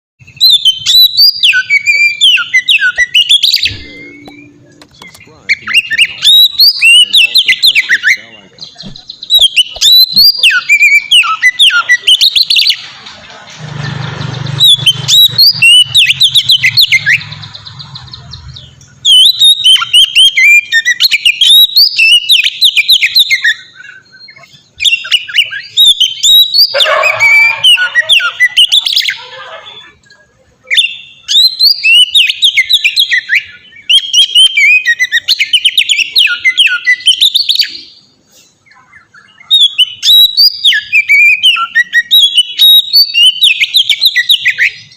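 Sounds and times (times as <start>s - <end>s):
bird singing whistles and chirps: 0.2s - 12.9s, 14.2s - 30.0s, 30.6s - 44.9s.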